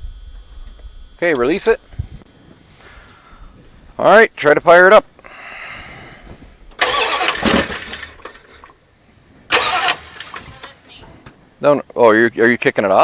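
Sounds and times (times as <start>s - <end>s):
starter motor cranking: 6.8s - 8.7s, 9.5s - 10.8s
car engine starting and dying: 6.8s - 8.8s, 9.5s - 10.9s.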